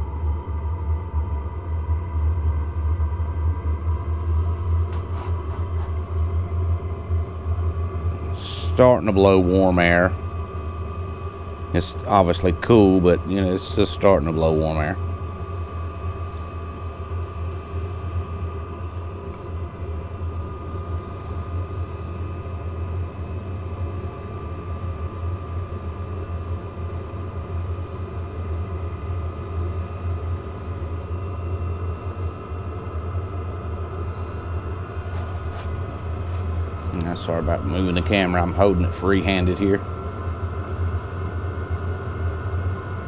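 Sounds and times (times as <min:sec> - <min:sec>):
air heater rumbling and whining: 0:00.0 - 0:43.0.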